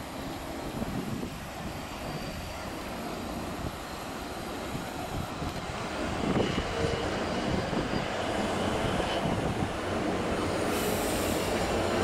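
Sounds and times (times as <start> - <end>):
electric train rumbling on rails: 0.0 - 12.0
faint thin squeal: 6.3 - 9.3.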